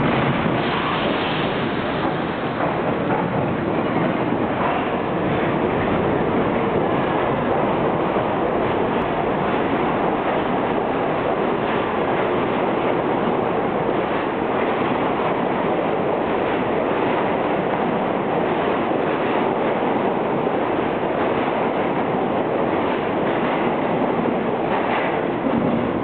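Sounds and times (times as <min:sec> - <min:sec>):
wheels clickety-clack: 0:00.0 - 0:07.4, 0:22.8 - 0:26.0
train wheels on rails: 0:00.0 - 0:26.0.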